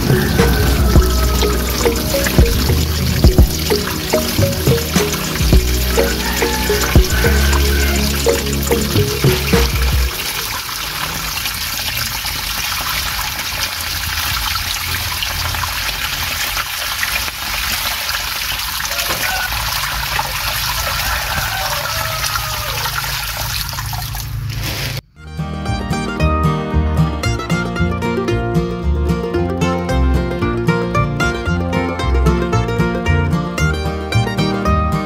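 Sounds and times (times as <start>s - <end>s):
water trickling into pond: 0.0s - 25.0s.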